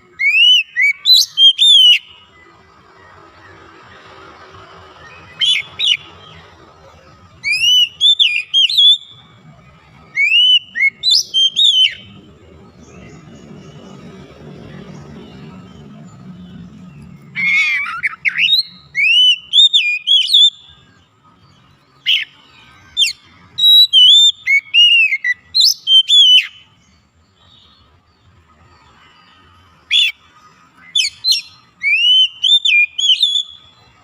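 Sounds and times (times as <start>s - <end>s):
bird singing whistled phrases: 0.0s - 2.5s, 5.0s - 6.4s, 7.4s - 9.2s, 10.1s - 12.2s, 17.3s - 20.8s, 22.0s - 26.7s, 29.8s - 30.2s, 30.8s - 33.9s.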